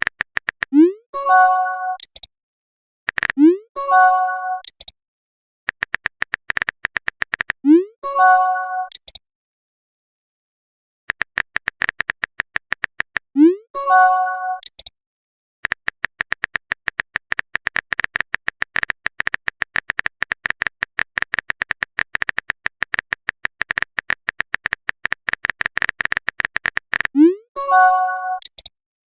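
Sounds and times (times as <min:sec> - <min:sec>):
keyboard tap clicks: 0:00.0 - 0:00.7, 0:05.7 - 0:07.6, 0:11.1 - 0:13.3, 0:15.6 - 0:27.1.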